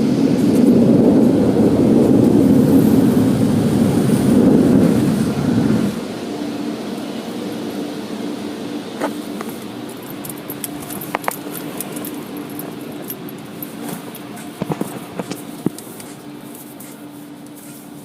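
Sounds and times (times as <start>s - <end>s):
car wash machinery hum: 0.0s - 18.0s.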